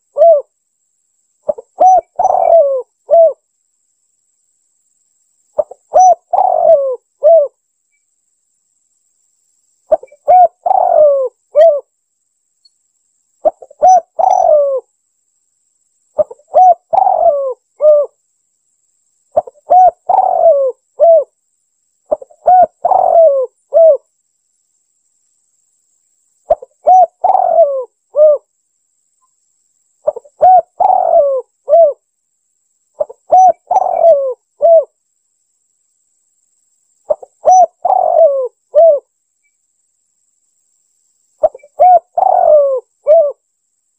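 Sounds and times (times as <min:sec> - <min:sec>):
dove cooing: 0:00.0 - 0:00.5, 0:01.5 - 0:03.4, 0:05.6 - 0:07.6, 0:09.9 - 0:11.9, 0:13.4 - 0:14.9, 0:16.2 - 0:18.2, 0:19.4 - 0:21.4, 0:22.1 - 0:24.1, 0:26.5 - 0:28.5, 0:30.0 - 0:32.0, 0:33.0 - 0:35.0, 0:37.1 - 0:39.1, 0:41.4 - 0:43.4.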